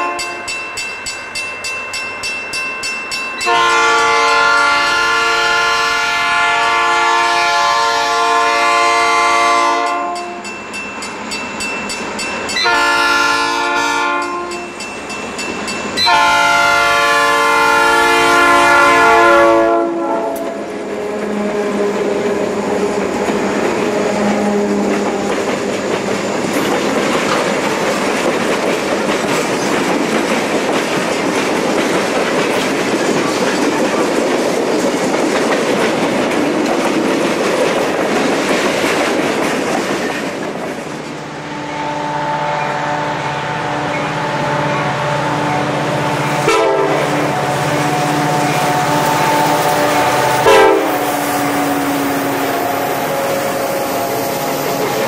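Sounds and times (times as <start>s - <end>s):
locomotive air horn blasts: 0.0s - 0.5s, 3.4s - 10.4s, 12.6s - 14.7s, 16.0s - 22.0s, 41.5s - 54.5s
train wheels clattering on rails: 22.0s - 41.2s.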